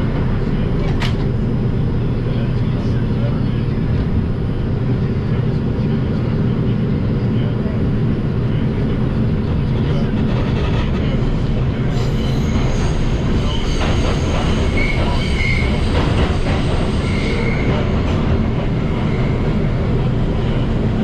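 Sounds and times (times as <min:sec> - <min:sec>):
wheels rumbling on rail: 0:00.0 - 0:21.0
high wheel squeals: 0:12.0 - 0:17.8.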